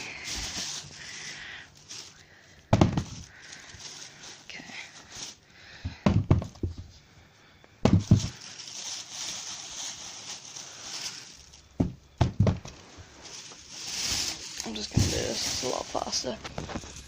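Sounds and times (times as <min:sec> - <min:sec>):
tennis balls thudding into container: 0:02.7 - 0:03.2, 0:05.8 - 0:06.9, 0:07.8 - 0:08.3, 0:11.8 - 0:12.8.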